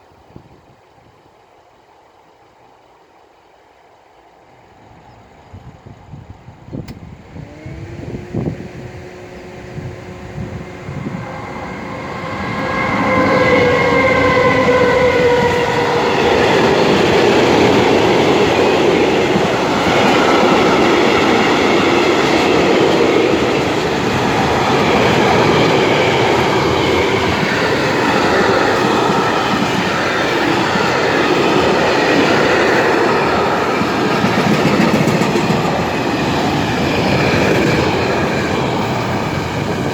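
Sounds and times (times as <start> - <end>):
electric locomotives passing: 2.0 - 39.9
wagons rolling over rails: 11.3 - 39.9.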